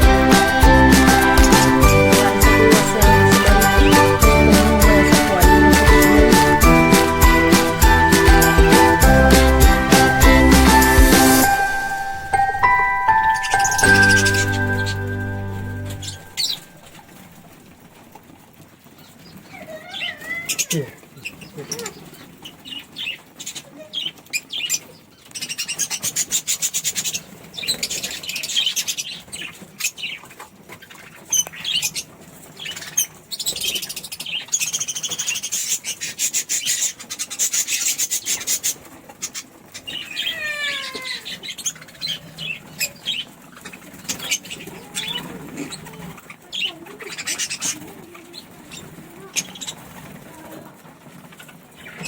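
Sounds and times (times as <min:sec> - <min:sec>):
bird chirps: 0:00.0 - 0:17.2, 0:30.9 - 0:50.0
budgerigars fluttering wings: 0:16.0 - 0:52.0
short falling bird calls: 0:37.0 - 0:47.9.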